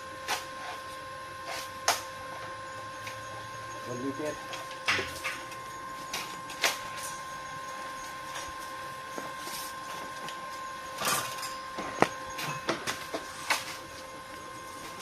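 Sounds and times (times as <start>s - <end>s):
high-pitched machine whine: 0.0s - 15.0s.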